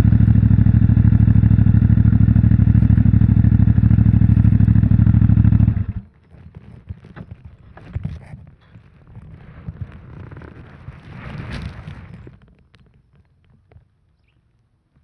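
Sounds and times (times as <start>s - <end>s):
motorcycle engine idling: 0.0s - 6.1s
faint clicks and rustles: 6.0s - 15.0s.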